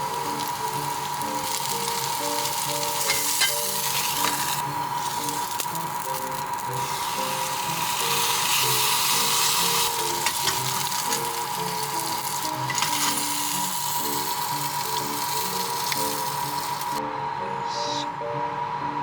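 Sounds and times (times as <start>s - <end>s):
food sizzling in a pan: 0.0s - 17.0s
soft background music: 0.0s - 19.0s.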